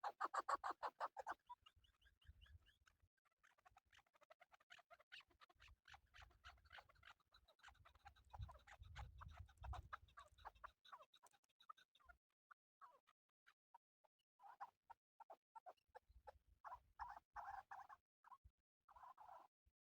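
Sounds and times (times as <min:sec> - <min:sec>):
partridge clucking calls: 0:00.0 - 0:12.2.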